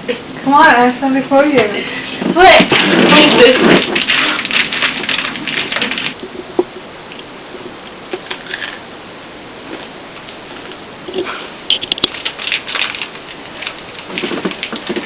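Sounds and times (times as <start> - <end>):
granola bar wrapper crackling: 2.5 - 6.2, 11.7 - 15.0.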